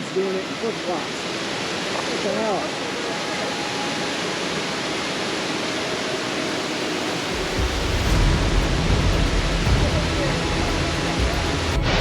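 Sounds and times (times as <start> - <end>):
waterfall rushing: 0.0 - 12.0
low rumble: 7.4 - 12.0.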